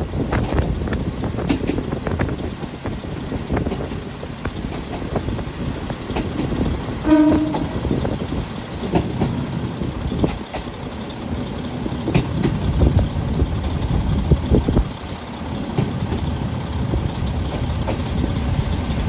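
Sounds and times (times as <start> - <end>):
train rumbling on rails: 0.0 - 19.0
train horn blast: 7.0 - 7.9.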